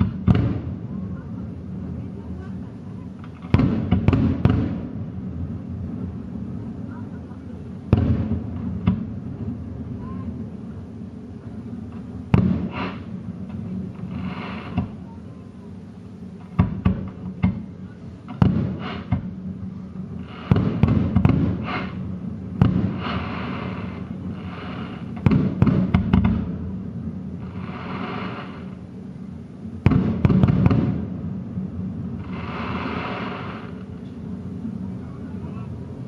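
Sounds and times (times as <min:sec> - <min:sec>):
fireworks bangs: 0:00.0 - 0:01.1, 0:03.0 - 0:06.1, 0:07.7 - 0:09.6, 0:11.9 - 0:15.3, 0:16.3 - 0:29.0, 0:29.8 - 0:31.4, 0:32.1 - 0:34.2
fireworks hissing: 0:00.0 - 0:36.0.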